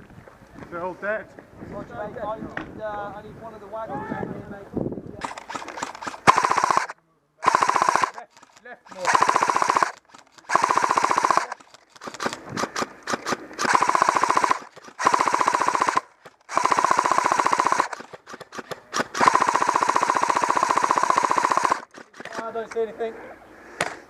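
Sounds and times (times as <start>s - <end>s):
gun motor whine: 5.2s - 8.2s, 8.9s - 12.4s, 13.1s - 18.1s, 19.1s - 21.9s
airsoft gun bursts: 5.2s - 22.7s.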